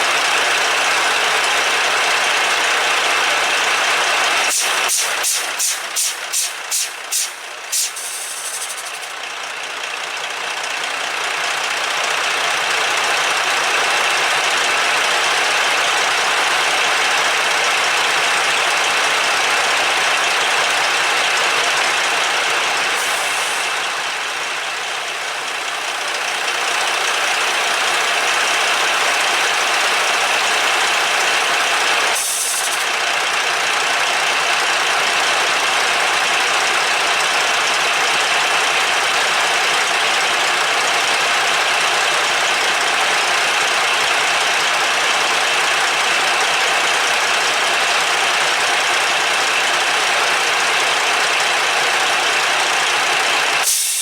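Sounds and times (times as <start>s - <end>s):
diesel truck engine idling: 0.0s - 54.0s
brief high hiss: 4.5s - 9.1s, 32.2s - 32.9s, 53.6s - 54.0s.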